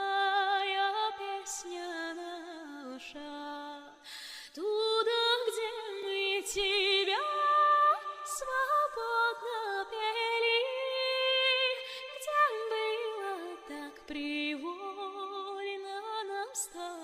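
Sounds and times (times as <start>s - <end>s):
singer breathing: 4.0s - 4.6s.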